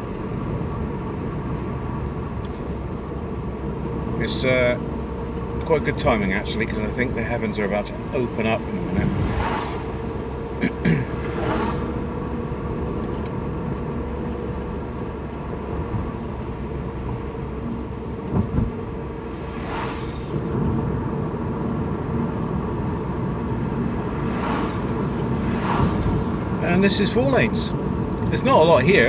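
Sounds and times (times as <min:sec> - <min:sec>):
car engine and road noise: 0:00.0 - 0:29.0
whooshes: 0:08.9 - 0:10.2, 0:11.1 - 0:12.1, 0:19.1 - 0:20.8, 0:24.0 - 0:26.8.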